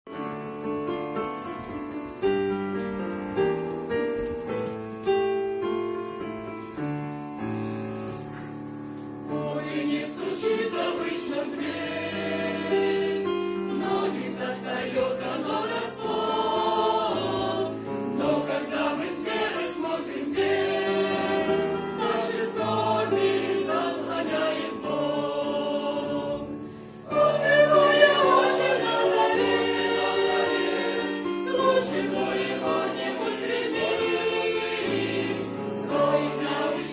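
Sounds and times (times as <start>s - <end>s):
choir singing: 9.2s - 36.9s.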